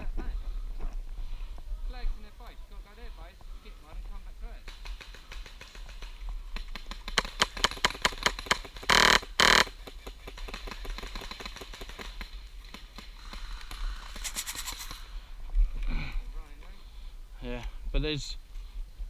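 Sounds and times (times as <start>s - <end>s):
rapid full-auto fire bursts: 4.6s - 13.5s.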